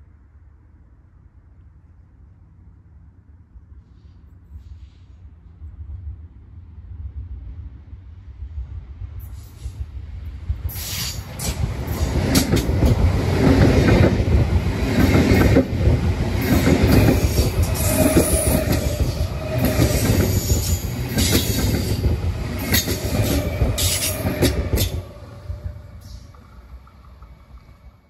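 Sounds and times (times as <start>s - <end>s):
train wheels clattering: 10.8s - 27.6s.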